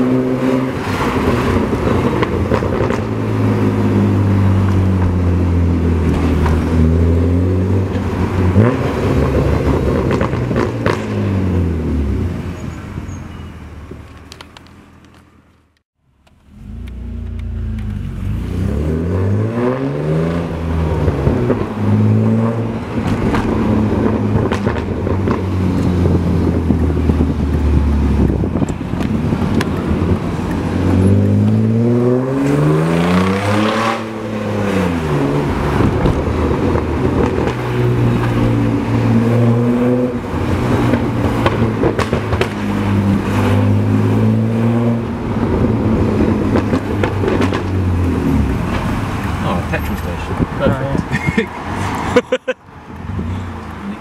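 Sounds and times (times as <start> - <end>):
car engine revving: 16.3 - 28.6, 29.2 - 50.9.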